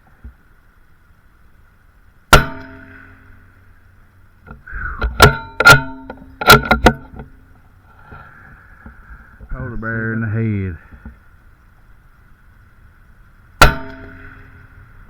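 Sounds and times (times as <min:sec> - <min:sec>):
metallic ring: 0:02.3 - 0:03.6, 0:05.2 - 0:07.5, 0:13.6 - 0:14.8.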